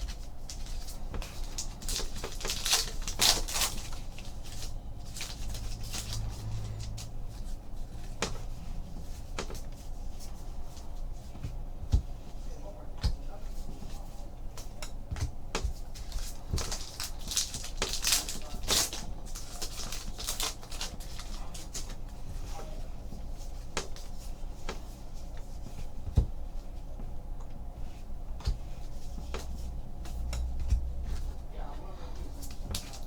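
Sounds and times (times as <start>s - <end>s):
foil wrapper crinkling: 0.0s - 6.2s, 16.1s - 21.7s
cards and wrappers rustling: 0.0s - 9.6s, 15.6s - 22.0s, 30.9s - 33.0s
steady low hum: 0.0s - 33.0s.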